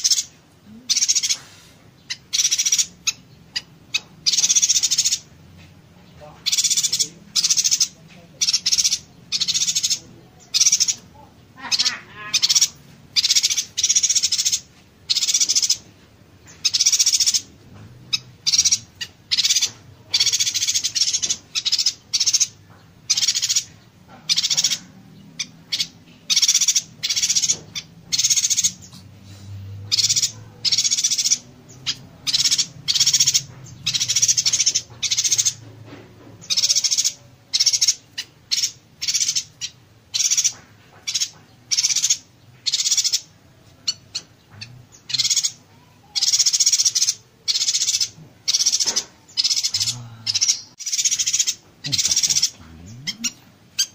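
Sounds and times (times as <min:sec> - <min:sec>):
bird singing buzzy bursts: 0:29.5 - 0:35.6, 0:36.4 - 0:53.9.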